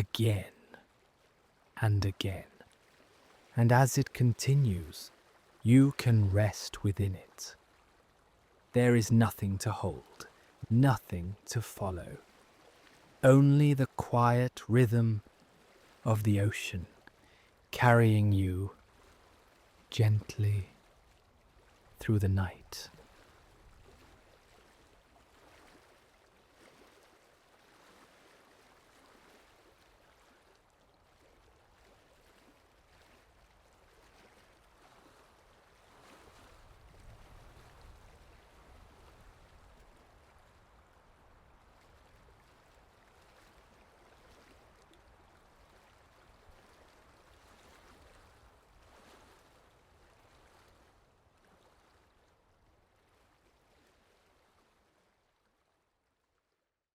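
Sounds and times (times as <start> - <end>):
water lapping in gentle swells: 0.0 - 56.8.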